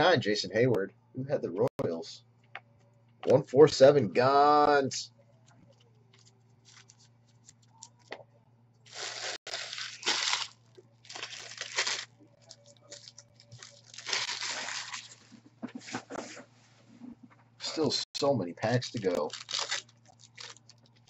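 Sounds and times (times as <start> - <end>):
wrappers tearing and crinkling: 8.9 - 15.3, 18.9 - 21.0.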